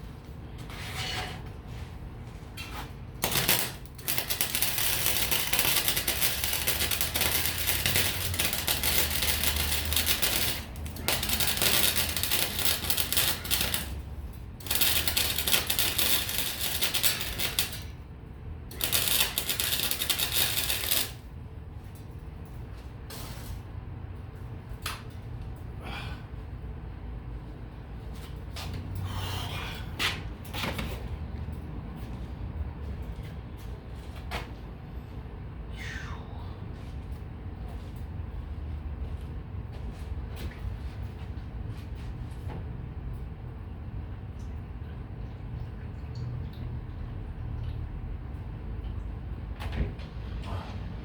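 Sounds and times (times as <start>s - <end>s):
welder arc crackling: 3.2s - 18.0s, 18.7s - 21.3s.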